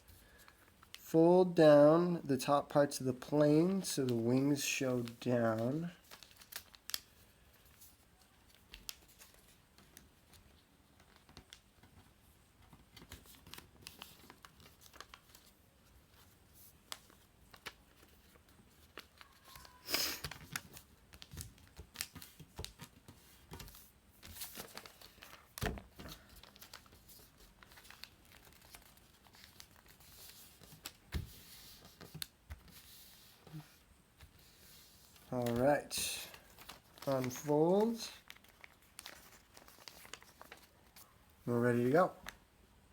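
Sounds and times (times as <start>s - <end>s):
paper rustling and crinkling: 2.9s - 42.4s.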